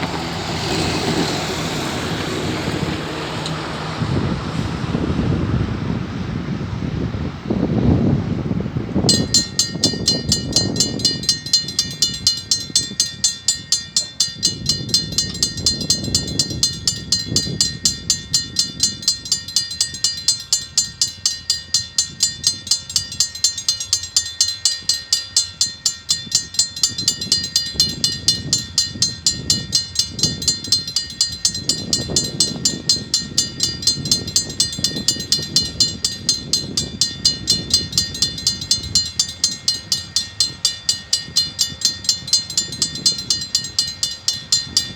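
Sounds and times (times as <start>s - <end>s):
diesel train rumbling past: 0.0s - 44.9s
level crossing bell ringing: 9.1s - 44.9s.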